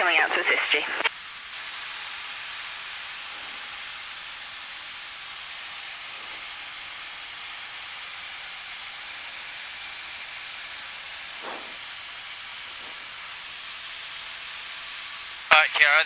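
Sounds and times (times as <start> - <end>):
aircraft cockpit hiss: 10.0 - 16.0.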